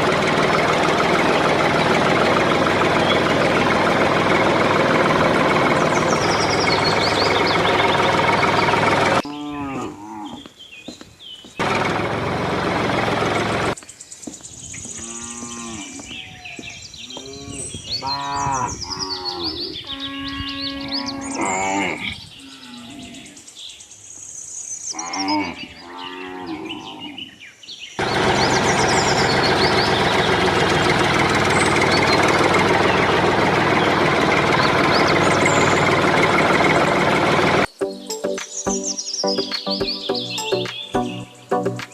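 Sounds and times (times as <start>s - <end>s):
cattle mooing: 9.2s - 10.5s, 15.0s - 16.1s, 17.2s - 23.3s, 25.0s - 27.2s.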